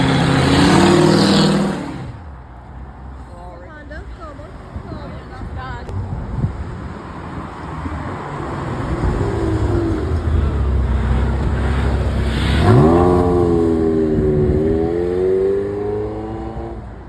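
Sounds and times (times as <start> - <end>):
car engine revving: 0.0 - 2.3, 6.9 - 17.0.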